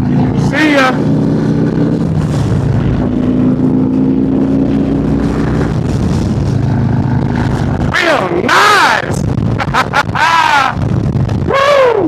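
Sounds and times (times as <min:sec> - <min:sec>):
motorcycle engine pulling away: 0:00.0 - 0:07.9
loud rushing noise: 0:00.0 - 0:12.0.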